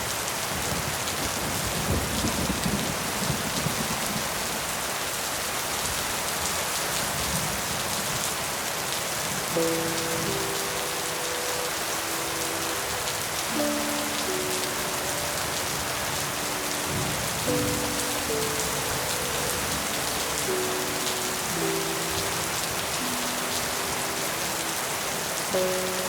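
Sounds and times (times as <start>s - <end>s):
rain falling on leaves: 0.0s - 26.0s
soft slow melody: 8.5s - 26.0s.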